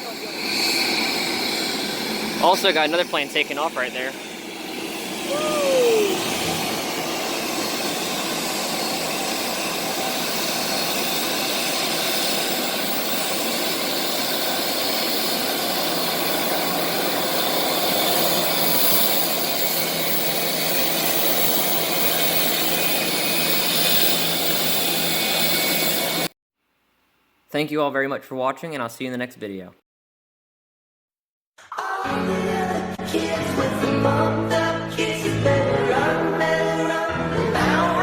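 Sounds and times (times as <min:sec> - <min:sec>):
jet engines taking off: 0:00.0 - 0:26.3.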